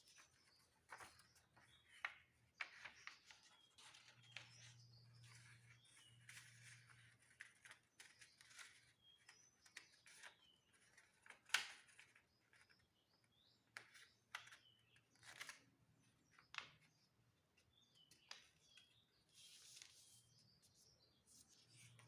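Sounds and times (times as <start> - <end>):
paper rustling and crinkling: 0.0 - 9.4.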